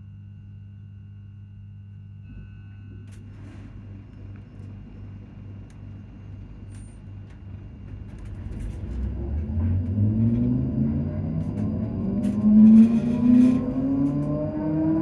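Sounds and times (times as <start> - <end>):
train interior rumble: 3.1 - 15.0
rising motor whine: 8.2 - 15.0.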